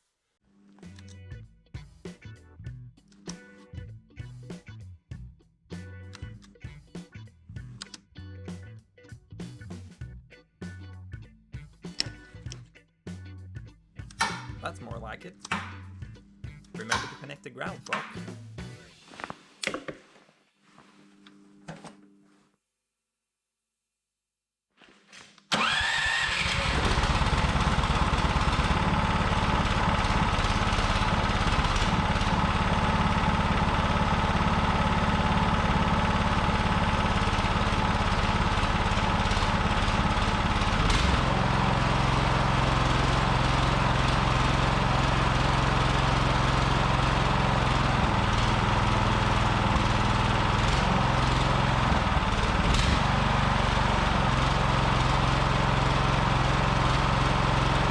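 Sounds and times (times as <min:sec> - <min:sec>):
electric starter cranking: 0:14.1 - 0:14.6, 0:16.8 - 0:18.2, 0:25.5 - 0:57.9
small gasoline engine running: 0:25.5 - 0:57.9.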